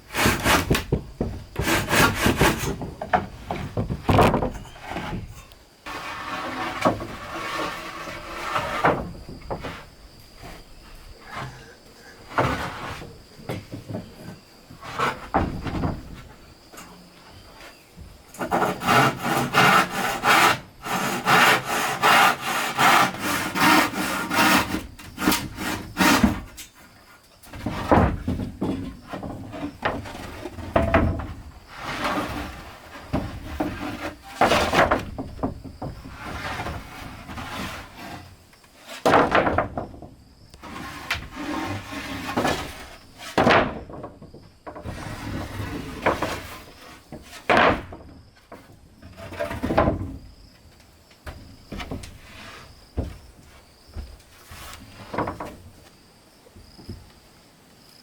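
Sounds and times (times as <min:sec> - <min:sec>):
wood scraping and knocking: 0:00.0 - 0:57.2
hand saw cutting wood: 0:00.1 - 0:00.9, 0:01.6 - 0:02.9, 0:18.4 - 0:26.6.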